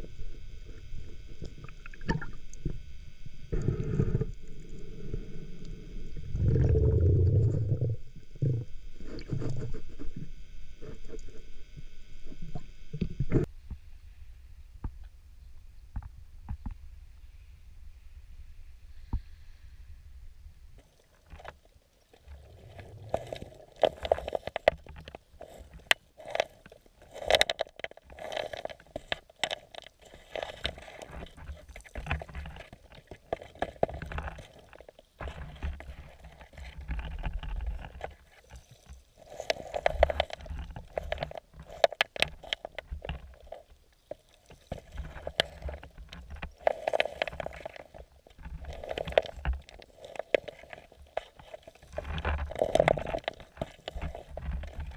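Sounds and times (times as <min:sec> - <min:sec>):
water gurgling and sloshing underwater: 0:00.0 - 0:13.8, 0:20.3 - 0:54.9
clicks and scrapes: 0:08.4 - 0:11.5, 0:21.2 - 0:54.9.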